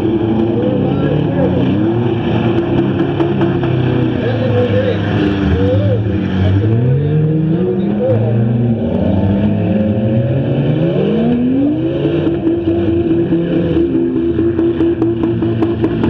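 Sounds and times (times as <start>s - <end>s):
race car engines revving: 0.0s - 16.0s.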